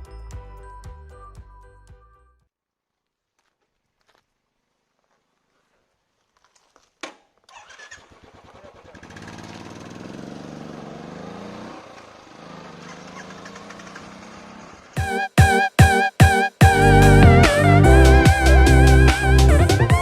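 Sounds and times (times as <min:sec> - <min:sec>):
vehicle engine starting and running: 0:07.5 - 0:15.0.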